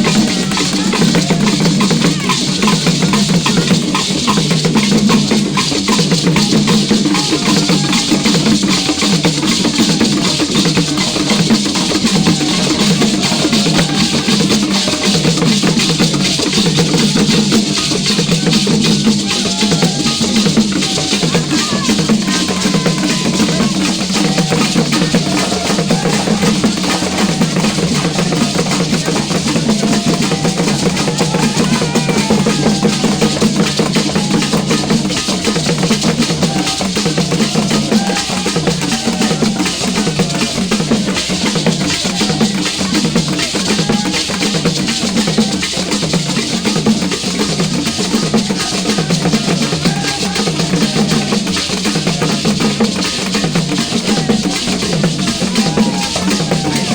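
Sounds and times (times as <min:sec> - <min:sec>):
loud driving drumming: 0:00.0 - 0:56.9.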